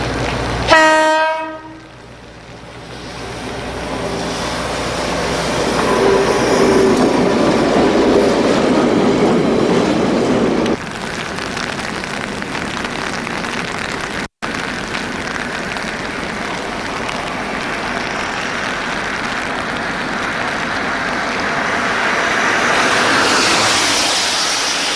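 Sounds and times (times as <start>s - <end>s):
train wheels rumbling on rails: 0.0s - 0.7s, 1.4s - 10.8s, 15.5s - 24.9s
train passing: 0.0s - 10.8s, 16.0s - 24.9s.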